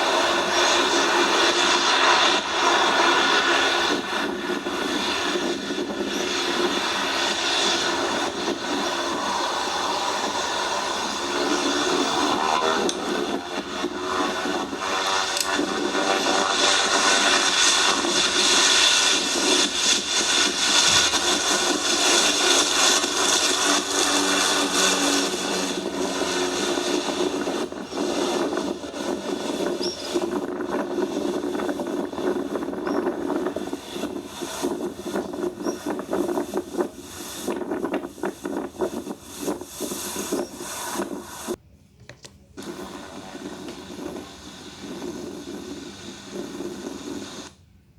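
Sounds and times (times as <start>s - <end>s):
airliner engines roaring: 0.0s - 41.6s, 42.6s - 47.6s.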